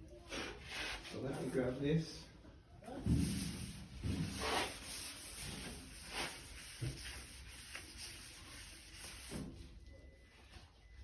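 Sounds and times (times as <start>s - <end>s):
faint rubbing: 3.1s - 9.6s.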